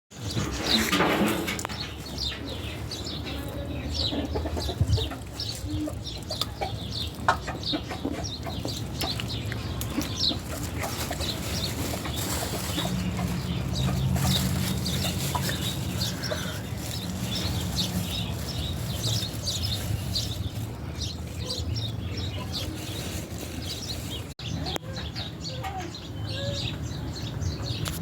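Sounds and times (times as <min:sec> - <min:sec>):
birds chirping high: 0:00.1 - 0:28.0.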